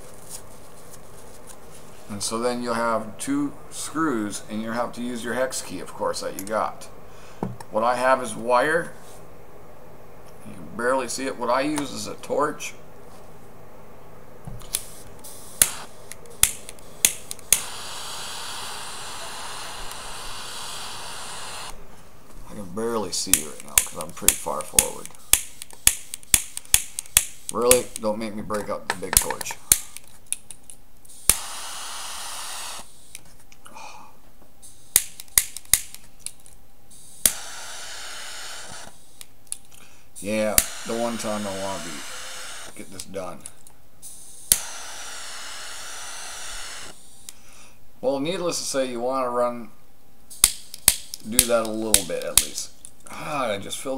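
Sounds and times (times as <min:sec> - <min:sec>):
torch flame hissing: 0:14.7 - 0:21.8, 0:40.2 - 0:42.8
torch lighter ignition clicks: 0:15.6 - 0:17.8, 0:37.2 - 0:37.5, 0:44.5 - 0:44.8.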